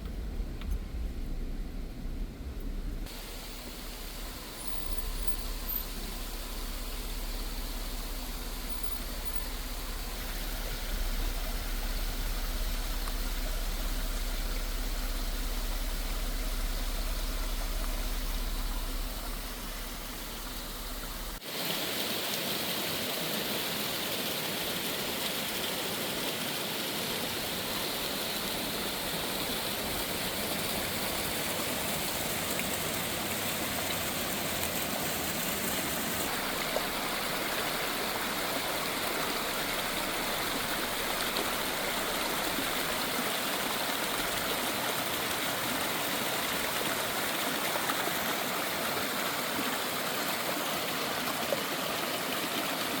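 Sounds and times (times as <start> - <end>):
car road rumble: 0.0 - 21.4, 27.3 - 47.5
water rushing over rocks: 3.1 - 53.0.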